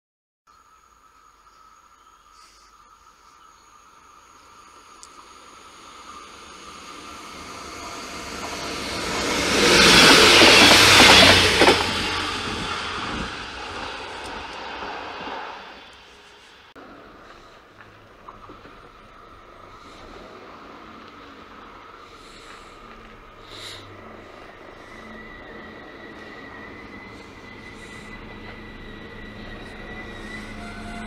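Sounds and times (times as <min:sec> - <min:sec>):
diesel train passing: 0:03.9 - 0:31.0.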